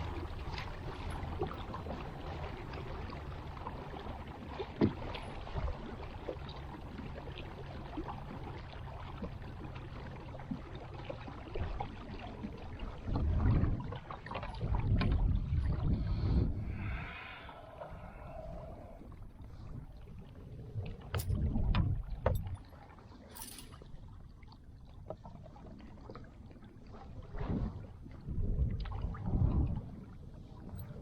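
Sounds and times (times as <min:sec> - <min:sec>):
water washing against hull: 0:00.0 - 0:31.0
low rumbles: 0:14.7 - 0:22.6.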